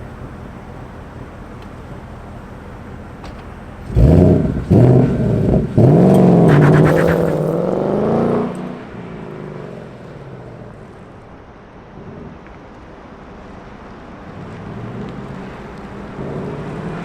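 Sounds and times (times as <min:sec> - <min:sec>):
car exhaust accelerating: 0:00.0 - 0:12.7.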